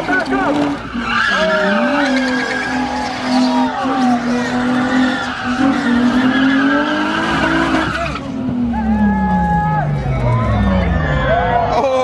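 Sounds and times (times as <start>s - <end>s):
car engine at high revs: 0.0s - 9.4s
tyres squealing on pavement: 0.0s - 11.8s.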